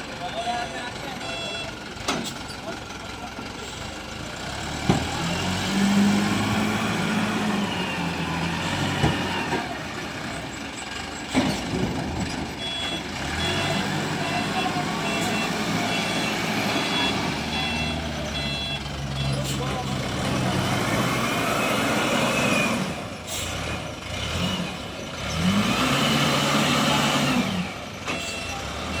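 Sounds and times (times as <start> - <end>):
diesel engine running: 0.0 - 29.0
reversing alarm beeping: 0.4 - 1.8, 12.6 - 19.9, 28.1 - 29.0.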